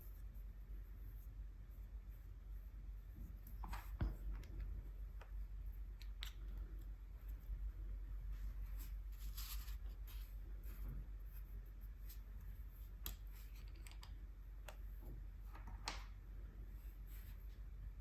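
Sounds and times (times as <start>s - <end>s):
scratchy brush strokes: 8.2s - 13.5s.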